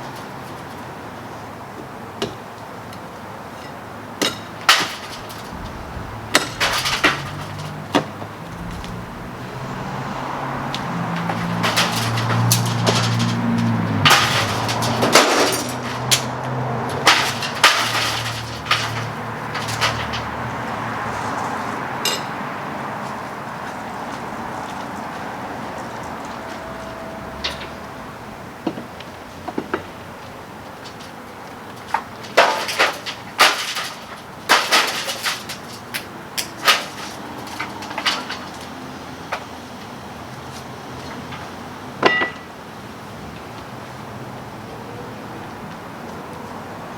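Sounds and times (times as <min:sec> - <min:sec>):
knocks and clinks of repair work: 0:04.2 - 0:16.3, 0:16.9 - 0:20.4
low machine hum: 0:05.2 - 0:12.5.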